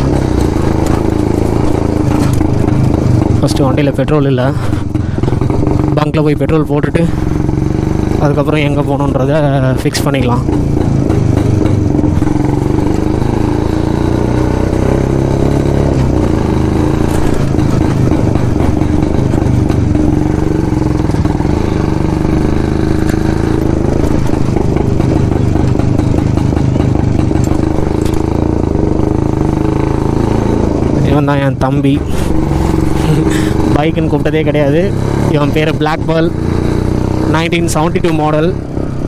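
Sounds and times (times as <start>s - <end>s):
two-stroke motorcycle engine running: 0.0s - 39.0s.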